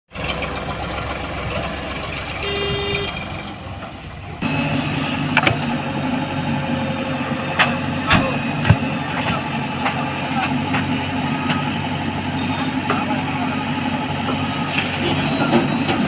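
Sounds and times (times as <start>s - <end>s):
diesel machinery rumbling: 0.1s - 16.0s
short horn toot: 2.4s - 3.2s.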